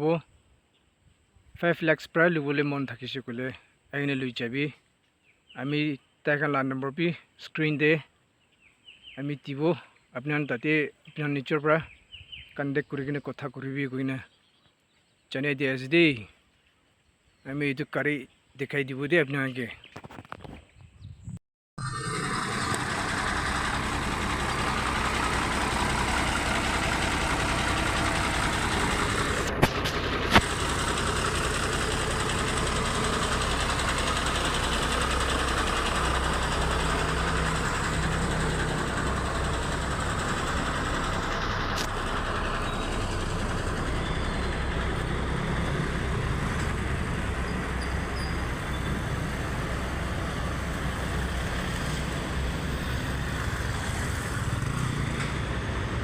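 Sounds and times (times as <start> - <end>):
diesel truck engine idling: 21.8 - 56.0.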